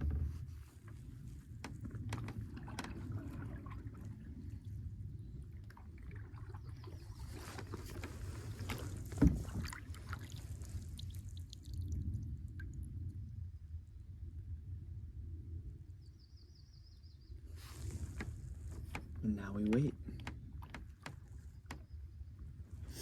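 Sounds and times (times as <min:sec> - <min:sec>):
paddle strokes: 0:00.0 - 0:04.9, 0:05.5 - 0:11.4, 0:17.5 - 0:22.0
water sounds: 0:01.6 - 0:13.1.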